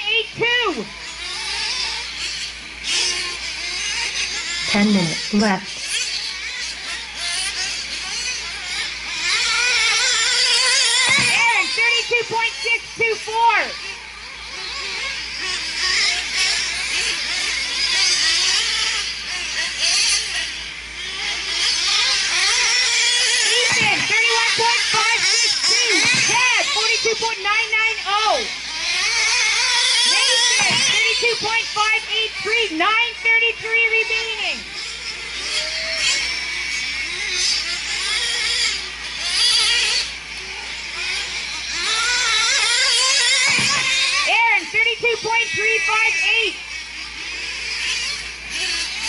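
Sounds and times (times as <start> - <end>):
rc truck engines screaming: 0.0 - 49.0.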